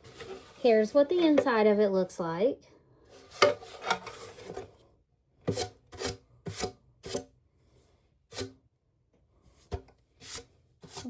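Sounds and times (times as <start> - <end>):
hard plastic parts scraping: 3.1 - 4.8.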